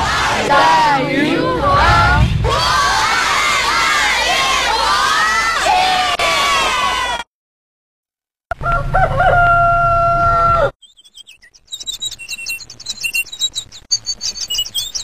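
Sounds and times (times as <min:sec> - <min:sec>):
rooster crowing: 0:08.5 - 0:10.8
small birds chirping: 0:10.8 - 0:15.0.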